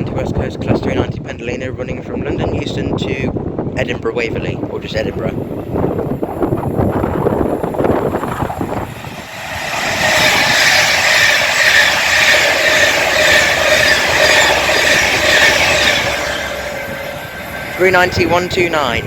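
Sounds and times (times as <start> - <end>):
electric train passing at speed: 2.0 - 19.0
high whine: 6.2 - 19.0.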